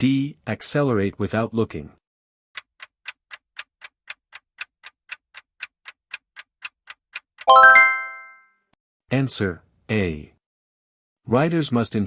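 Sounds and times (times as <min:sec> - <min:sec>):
clock ticking: 0:02.6 - 0:08.0
ringing chime: 0:07.5 - 0:08.4.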